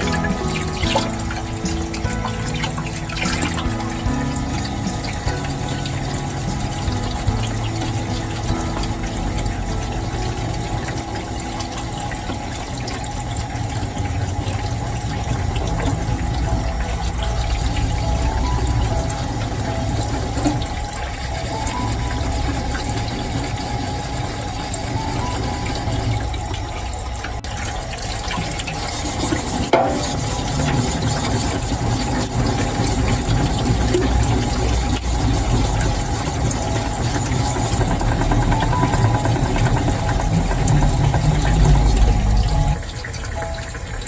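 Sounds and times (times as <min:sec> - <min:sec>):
water-fed grinding wheel running: 0:00.0 - 0:44.0
low rumble: 0:37.8 - 0:43.0.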